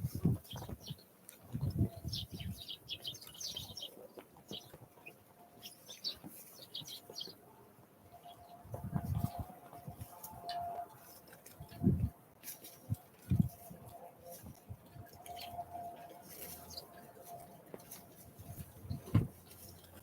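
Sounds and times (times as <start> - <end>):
songbirds chirping: 0.0 - 20.0
low thuds: 18.9 - 19.4.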